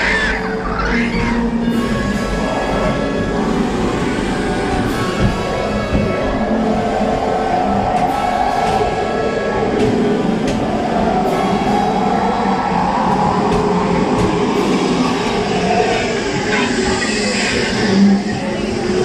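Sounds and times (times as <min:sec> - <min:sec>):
background music: 0:00.0 - 0:19.0
train wheels rumbling on rail: 0:00.0 - 0:19.0.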